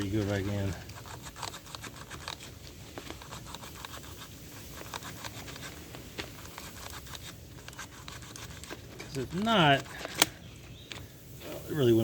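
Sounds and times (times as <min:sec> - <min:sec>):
clicks and scraping of small parts: 0:00.0 - 0:11.1.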